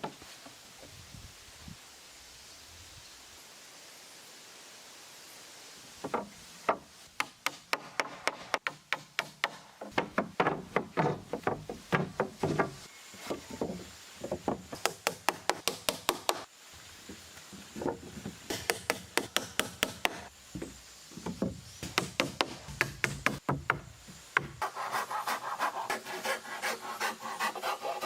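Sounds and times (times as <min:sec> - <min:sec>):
hand tool knocking on wood: 0:06.1 - 0:12.9, 0:18.5 - 0:24.6.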